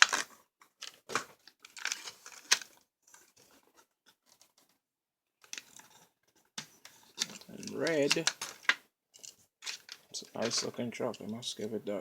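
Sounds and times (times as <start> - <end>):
packaging crinkling and tearing: 0.0 - 3.5.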